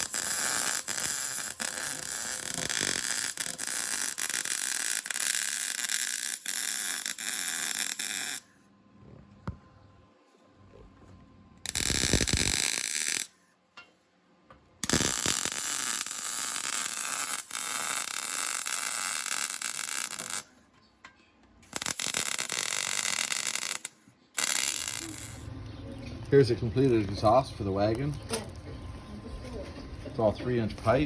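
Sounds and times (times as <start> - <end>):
welder arc crackling: 0.0 - 8.5, 11.7 - 13.3, 14.8 - 20.5, 21.6 - 25.5.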